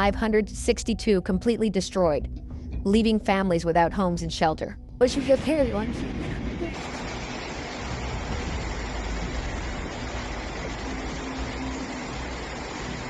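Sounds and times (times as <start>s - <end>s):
floodwater rushing: 6.3s - 13.0s.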